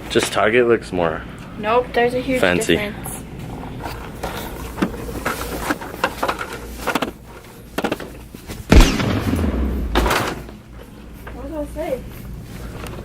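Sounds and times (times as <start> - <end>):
low rumble: 8.7 - 10.4
loud thump: 8.7 - 10.5.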